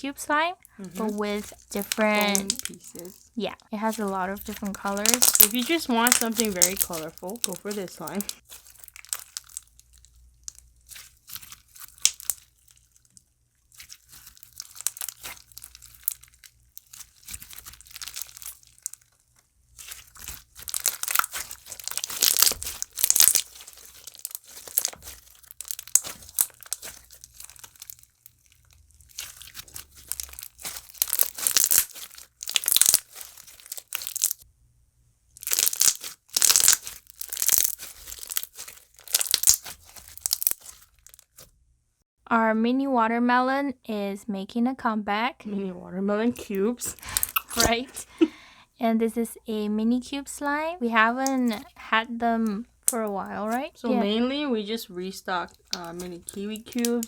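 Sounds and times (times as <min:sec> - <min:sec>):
slime squished by hand crunching: 0:00.6 - 0:34.4, 0:35.4 - 0:41.5, 0:46.3 - 0:48.4, 0:51.0 - 0:51.8, 0:55.0 - 0:57.0.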